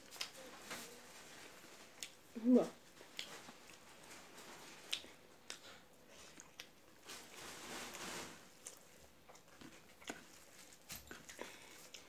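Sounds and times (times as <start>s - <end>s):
rustling: 0.0s - 5.2s, 7.0s - 9.0s.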